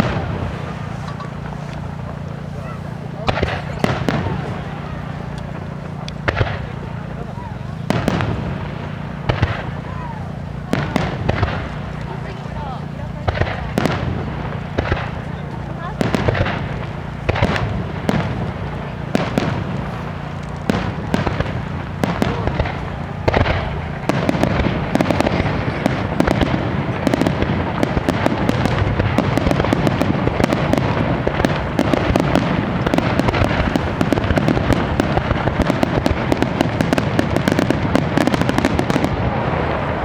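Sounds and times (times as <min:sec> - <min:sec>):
fireworks shells bursting: 0:00.0 - 0:39.8
fireworks crackle: 0:00.0 - 0:40.0.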